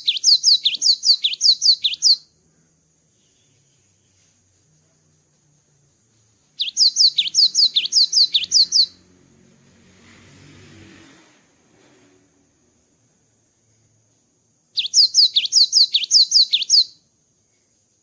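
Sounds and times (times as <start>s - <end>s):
bird whistling song: 0.0s - 2.3s, 6.6s - 9.0s, 14.7s - 17.0s
faint hiss: 0.0s - 18.0s.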